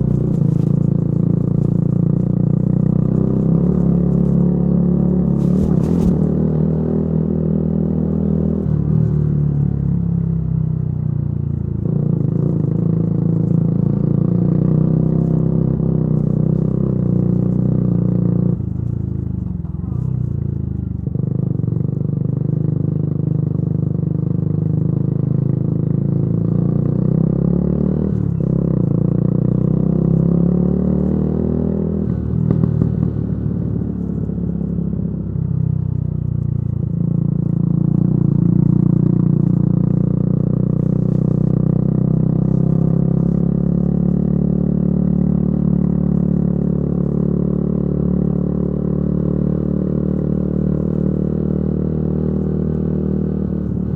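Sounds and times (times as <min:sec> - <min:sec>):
exhaust crackle: 0:00.0 - 0:07.9
motorcycle engine revving: 0:00.0 - 0:10.6, 0:11.4 - 0:53.9.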